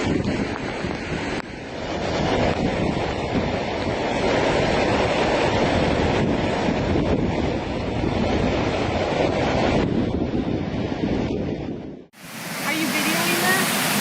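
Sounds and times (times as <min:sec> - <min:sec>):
wind buffeting microphone: 0:00.0 - 0:14.0
rushing floodwater roar: 0:12.2 - 0:14.0.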